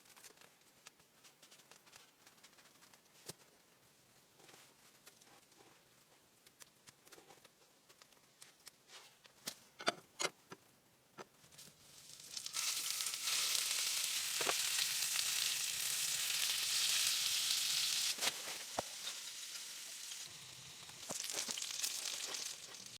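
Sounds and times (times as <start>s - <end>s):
food sizzling in hot pan: 11.8s - 22.9s.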